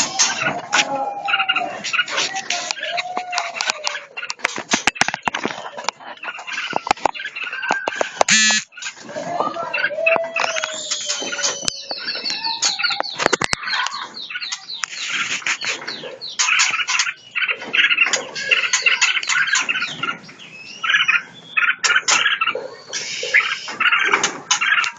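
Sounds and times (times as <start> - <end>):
songbirds chirping and whistling: 0.0 - 24.9
sharp clicks: 6.7 - 8.7.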